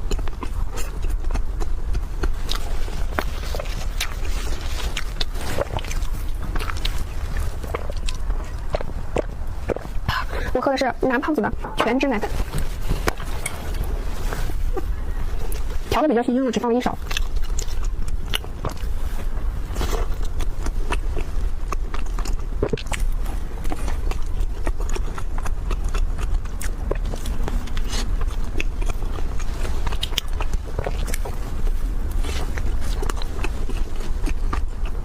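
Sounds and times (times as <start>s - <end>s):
person chewing food: 0.0s - 10.5s, 12.3s - 16.0s, 17.0s - 35.0s
steady low hum: 0.0s - 35.0s.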